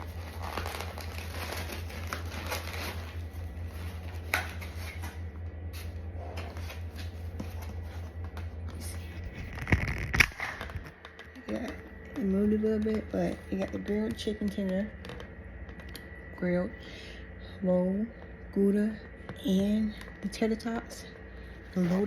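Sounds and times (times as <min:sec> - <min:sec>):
food packaging rustling: 0:00.0 - 0:05.2
low hum: 0:00.0 - 0:22.0.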